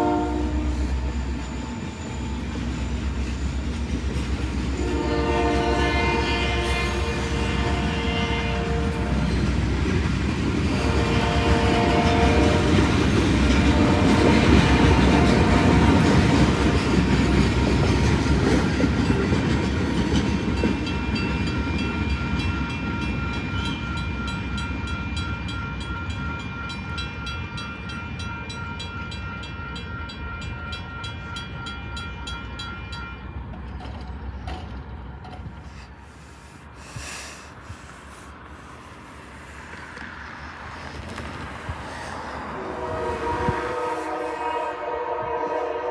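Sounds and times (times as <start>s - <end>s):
train horn: 0.0s - 2.6s, 4.7s - 9.7s, 10.6s - 18.7s, 21.0s - 33.6s, 42.1s - 45.9s
train rumbling past: 0.0s - 45.9s.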